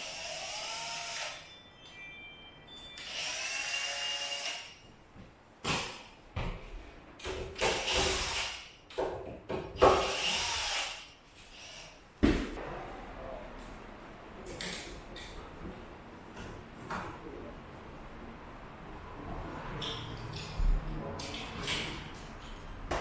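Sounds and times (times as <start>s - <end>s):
power drill whirring: 3.0s - 4.8s, 7.7s - 8.7s, 10.0s - 11.0s.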